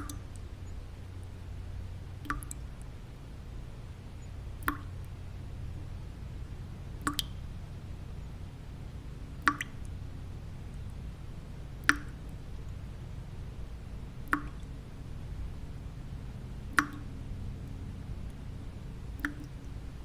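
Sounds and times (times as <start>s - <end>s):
water drops plinking: 0.0s - 0.4s, 2.2s - 2.6s, 4.6s - 5.1s, 7.0s - 7.5s, 9.4s - 10.0s, 11.8s - 12.8s, 14.2s - 14.8s, 16.6s - 18.4s, 19.1s - 19.7s
low white-noise hum: 0.0s - 20.0s.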